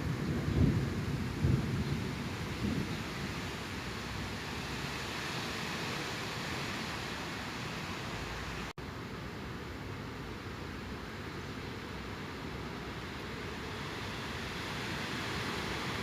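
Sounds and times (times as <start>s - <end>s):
thunder rumble: 0.0s - 6.5s
heavy rain hissing: 0.0s - 16.0s.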